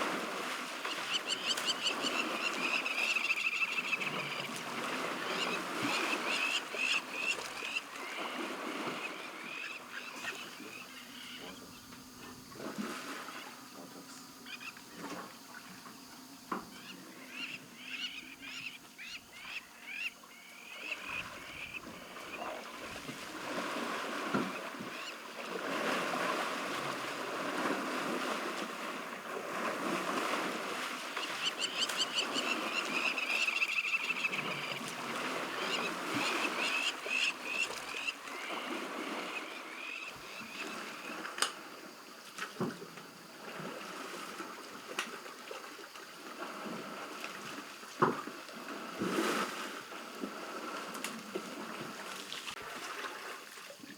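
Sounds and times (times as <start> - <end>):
rushing splashing water: 0.0 - 3.1
birds chirping: 0.8 - 11.9, 16.7 - 22.7, 31.2 - 40.8.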